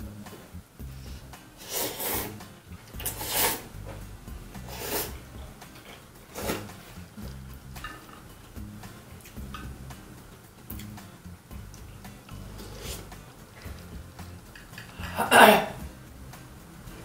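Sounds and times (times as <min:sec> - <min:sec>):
quiet background music: 0:00.0 - 0:17.0
noodles being slurped: 0:01.6 - 0:02.4, 0:03.0 - 0:03.7, 0:04.6 - 0:05.2, 0:12.4 - 0:13.2.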